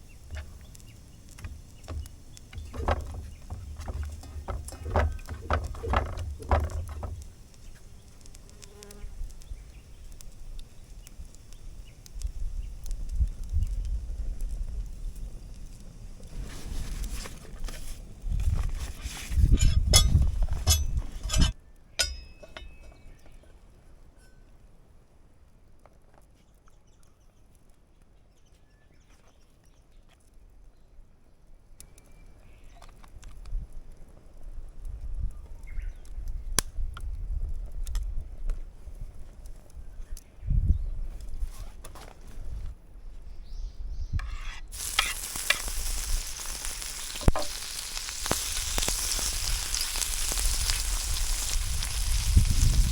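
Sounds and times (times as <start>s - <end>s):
small clicks and ticks: 0.2s - 15.9s
knocks with low thuds: 1.4s - 7.4s.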